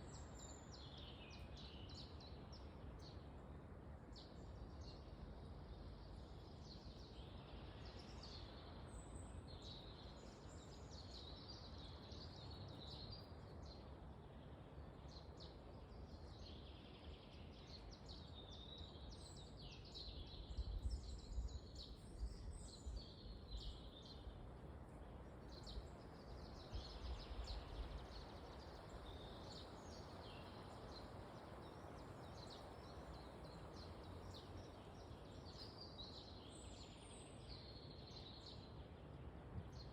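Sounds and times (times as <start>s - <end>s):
wind through trees: 0.0s - 39.9s
small birds chirping: 14.9s - 39.9s.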